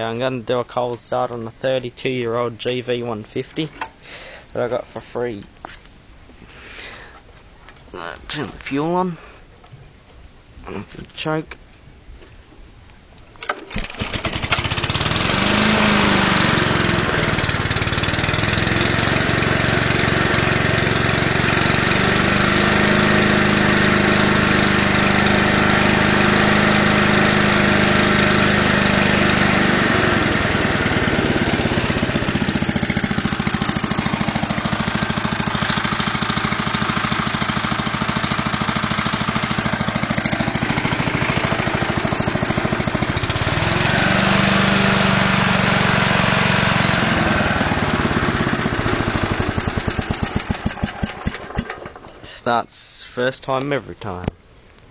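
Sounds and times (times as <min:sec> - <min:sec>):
mower engine starting and running: 0:13.4 - 0:53.0.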